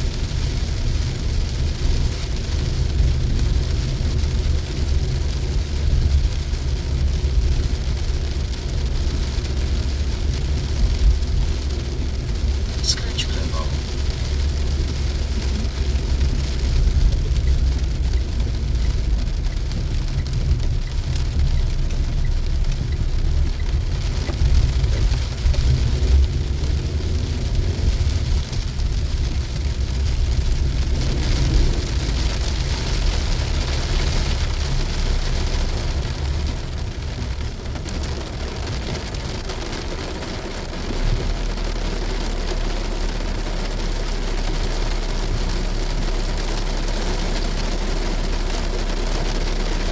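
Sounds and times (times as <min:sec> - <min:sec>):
car driving on wet road: 0:00.0 - 0:49.9
heavy rain on a car: 0:00.0 - 0:49.9.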